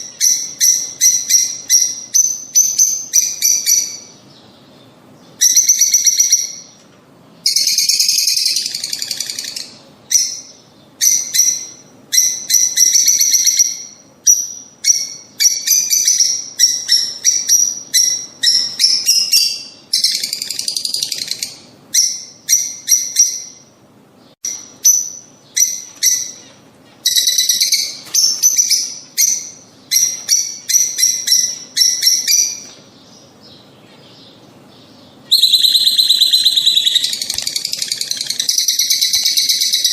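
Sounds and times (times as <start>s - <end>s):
lovebirds chirping: 0.0s - 39.9s
lovebirds chattering: 24.6s - 39.9s.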